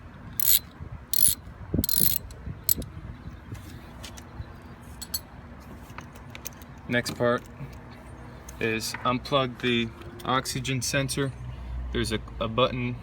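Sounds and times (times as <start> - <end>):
socket ratchet clicking: 0.4 - 2.8.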